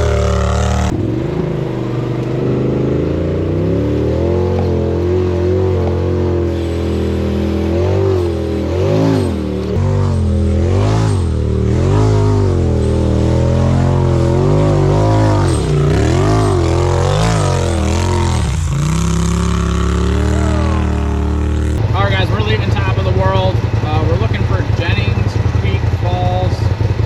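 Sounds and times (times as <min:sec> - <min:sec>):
engine revving up and down: 0:00.0 - 0:27.0.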